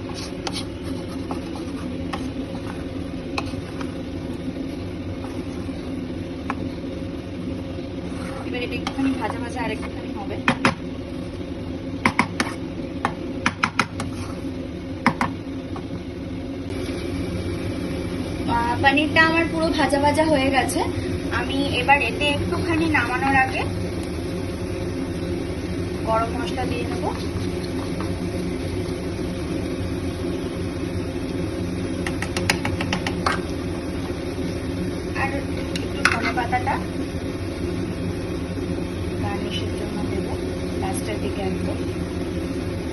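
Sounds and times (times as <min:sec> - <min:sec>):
steady low hum: 0:00.0 - 0:42.9
metal spatula scraping a pan: 0:08.0 - 0:09.5
metal spatula tapping pan: 0:32.0 - 0:33.4.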